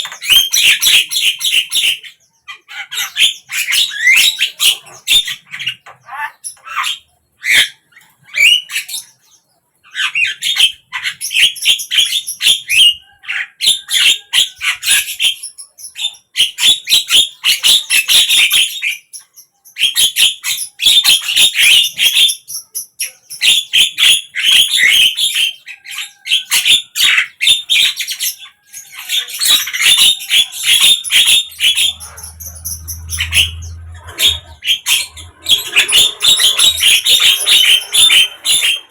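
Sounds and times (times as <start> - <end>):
myna chattering calls: 24.1 - 38.9.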